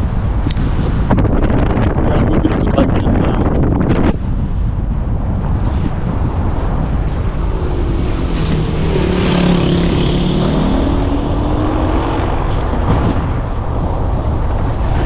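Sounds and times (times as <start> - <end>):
wind rumble on microphone: 0.0 - 15.0
vehicle engine running: 12.4 - 15.0.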